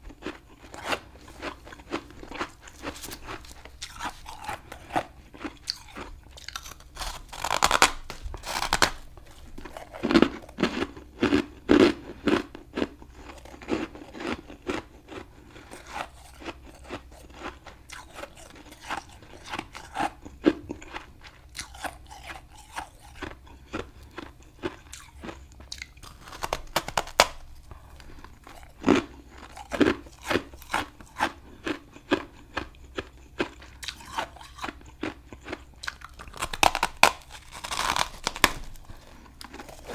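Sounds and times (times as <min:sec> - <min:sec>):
crunching and chewing frost: 0:00.0 - 0:39.9.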